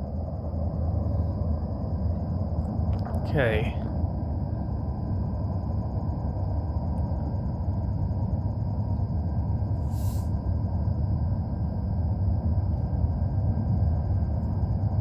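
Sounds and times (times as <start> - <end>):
brief hiss: 9.8 - 10.3.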